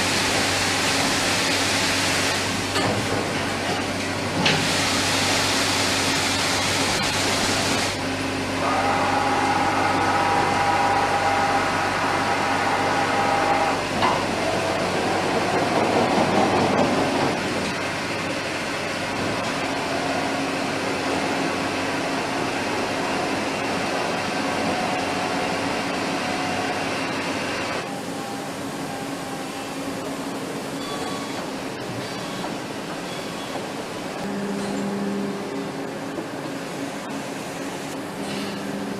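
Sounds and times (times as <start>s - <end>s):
loud machine hiss: 4.4s - 8.0s
steady machine hum: 34.2s - 38.9s.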